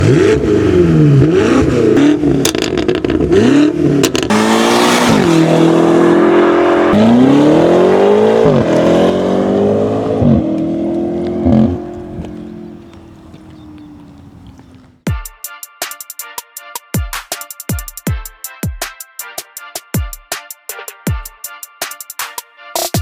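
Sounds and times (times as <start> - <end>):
car engine revving: 0.0 - 15.0
car engine idling: 0.6 - 4.5, 5.5 - 15.0
exhaust crackling pops: 2.2 - 4.4, 10.0 - 15.0.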